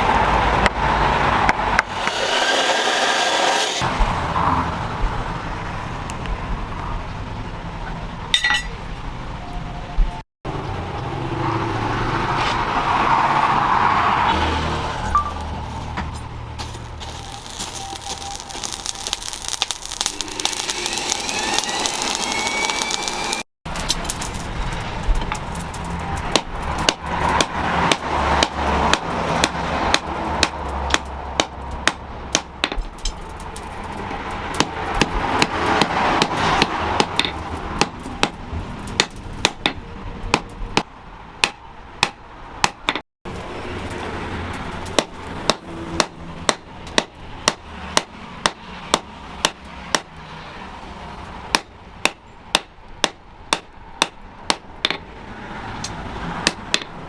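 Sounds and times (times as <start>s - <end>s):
hammer striking steel on anvil: 8.4s - 8.8s.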